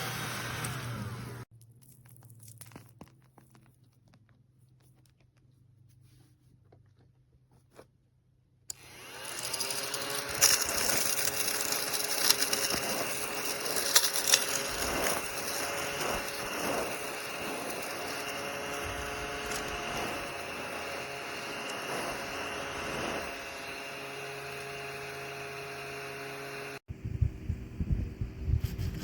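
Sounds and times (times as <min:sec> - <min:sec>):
vacuum motor whine: 0:00.0 - 0:01.5, 0:08.7 - 0:27.8.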